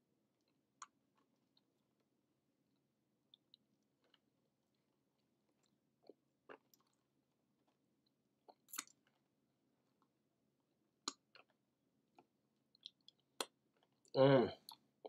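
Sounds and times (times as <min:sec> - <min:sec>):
person chewing food: 0:00.3 - 0:14.9
wet mouth smacks and clicks: 0:08.5 - 0:09.0, 0:11.0 - 0:11.6, 0:12.2 - 0:13.9.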